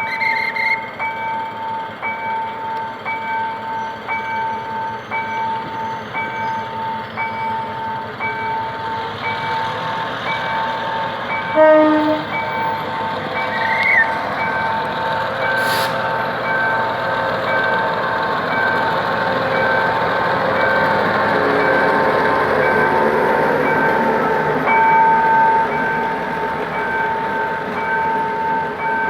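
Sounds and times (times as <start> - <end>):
diesel locomotive pulling away: 0.0 - 29.0
level crossing warning bell: 0.8 - 29.0
locomotive horn blast: 11.5 - 12.5.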